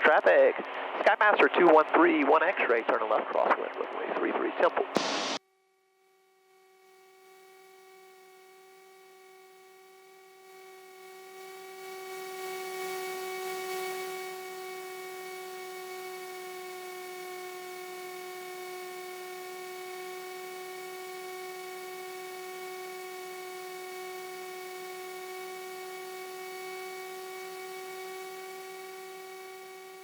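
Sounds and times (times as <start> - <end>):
aircraft engines droning in cockpit: 0.0 - 4.7, 8.4 - 30.0.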